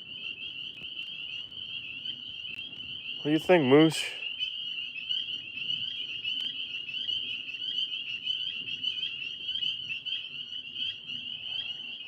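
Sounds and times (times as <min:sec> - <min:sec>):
tree frogs calling: 0:00.0 - 0:12.0.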